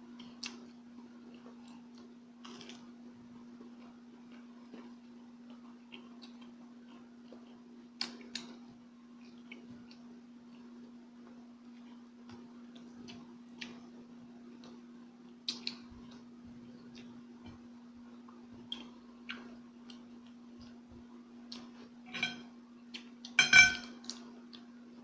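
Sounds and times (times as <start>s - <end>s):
steady low hum: 0.0s - 25.0s
chewing clicks and smacks: 0.2s - 2.8s, 3.8s - 8.6s, 11.7s - 13.8s, 15.4s - 16.2s, 18.3s - 20.8s, 22.9s - 23.4s.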